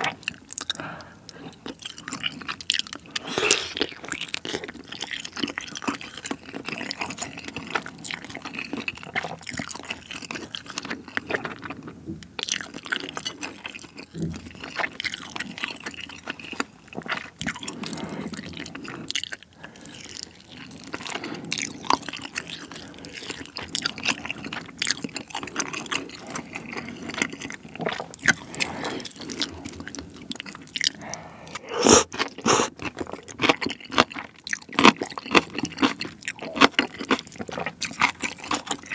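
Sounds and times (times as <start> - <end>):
wet chewing with crunching: 0.0 - 38.9
strands sucked into mouth: 3.2 - 3.9, 31.0 - 32.8.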